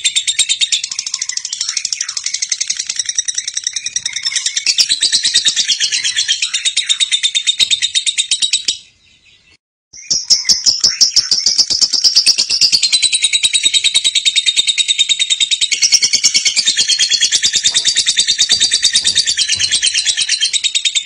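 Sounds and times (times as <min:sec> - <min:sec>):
lovebird chattering: 0:10.0 - 0:21.0.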